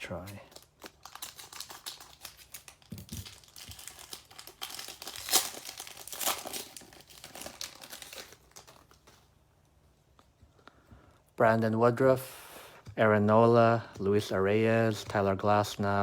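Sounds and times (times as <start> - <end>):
wrapper crinkling and tearing: 0.1 - 9.3.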